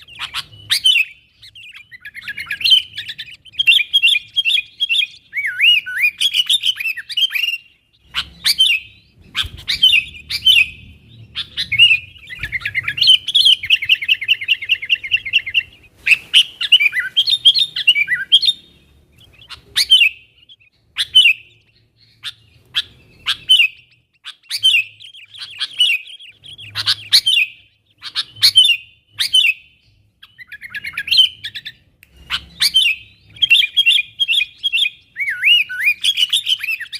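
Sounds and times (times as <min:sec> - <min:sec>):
bird chirping phrases: 0:00.0 - 0:36.9.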